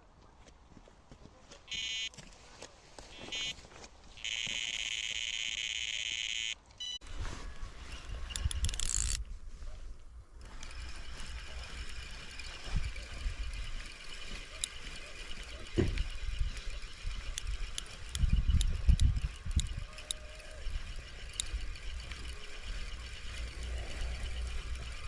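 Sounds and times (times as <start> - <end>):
bite alarm beeps and tone: 1.7 - 2.2, 3.2 - 3.6, 4.2 - 7.0.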